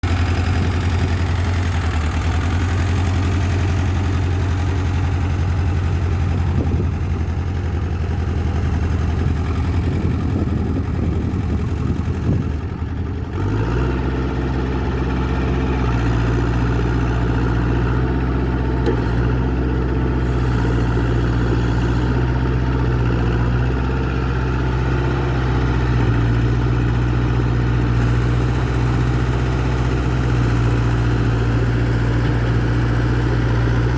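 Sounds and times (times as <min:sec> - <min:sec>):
diesel engine idling and revving: 0:00.0 - 0:33.9.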